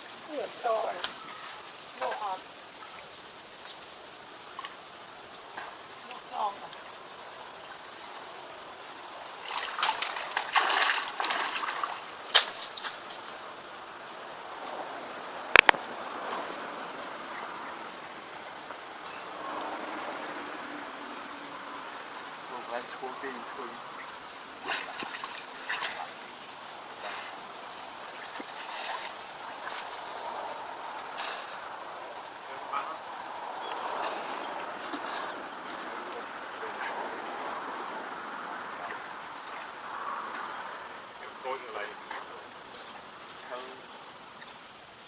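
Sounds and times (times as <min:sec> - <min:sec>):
water splashing: 0:00.0 - 0:13.5, 0:22.5 - 0:44.6
short water splashes: 0:09.3 - 0:13.2, 0:24.6 - 0:31.7.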